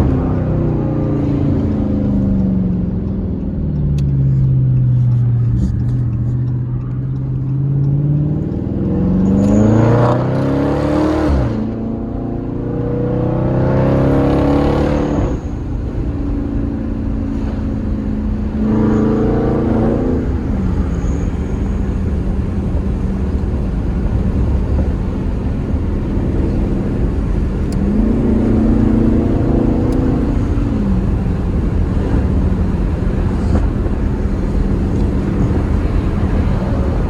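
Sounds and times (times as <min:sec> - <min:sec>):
car engine accelerating hard: 0:00.0 - 0:37.0.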